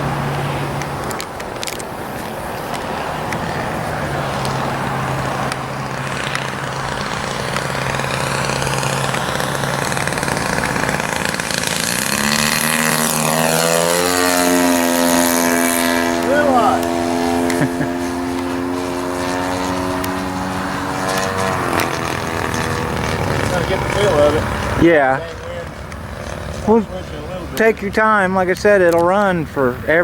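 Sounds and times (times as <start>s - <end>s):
model airplane engine droning: 0.0s - 30.0s.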